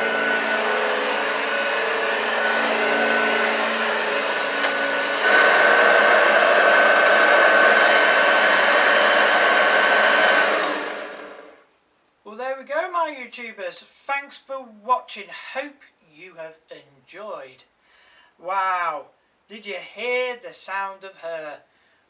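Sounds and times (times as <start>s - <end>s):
vacuum cleaner running on carpet: 0.0s - 11.6s.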